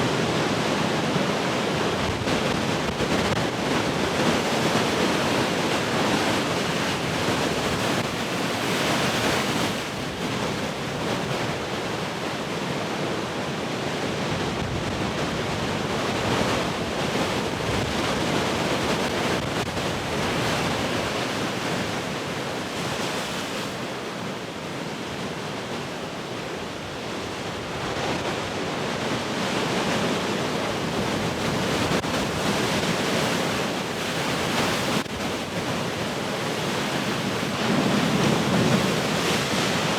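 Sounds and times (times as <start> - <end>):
ocean waves breaking: 26.8 - 39.9.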